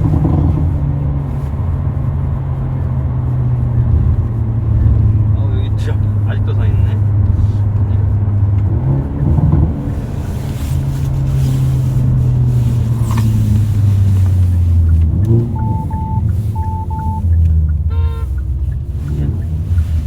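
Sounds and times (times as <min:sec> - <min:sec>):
engine drone inside car cabin: 0:00.0 - 0:20.0
short electronic beeps: 0:14.8 - 0:19.3.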